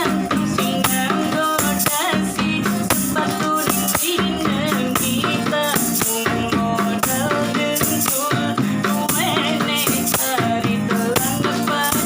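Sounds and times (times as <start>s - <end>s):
person singing: 0.0s - 12.0s
shaken rattle beat: 0.0s - 12.0s.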